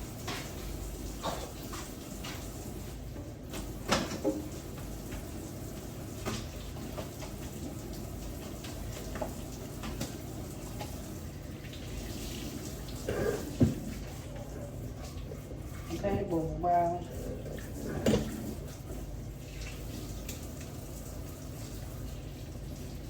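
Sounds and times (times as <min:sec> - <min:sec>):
tap water running: 0:00.0 - 0:23.0
knocks and clatter in sink: 0:03.5 - 0:05.3, 0:13.1 - 0:14.5, 0:17.6 - 0:18.7.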